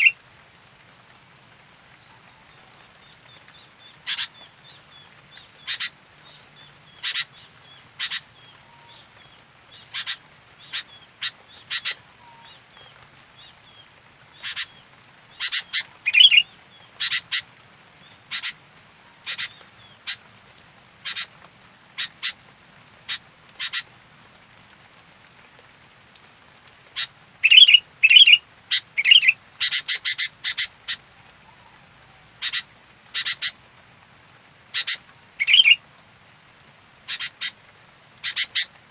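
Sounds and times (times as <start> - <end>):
bird calling: 2.1 - 20.2, 21.0 - 21.3, 23.1 - 23.9, 27.0 - 31.8, 32.4 - 33.6, 34.7 - 35.8, 37.1 - 37.6, 38.2 - 38.8
bird warbling: 5.6 - 6.0, 6.9 - 7.4, 8.0 - 9.1, 9.8 - 12.5, 15.4 - 17.5, 27.0 - 31.7, 34.8 - 35.8.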